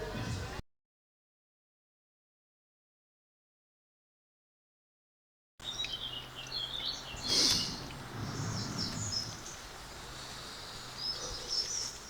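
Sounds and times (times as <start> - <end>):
birds chirping: 5.6 - 12.0.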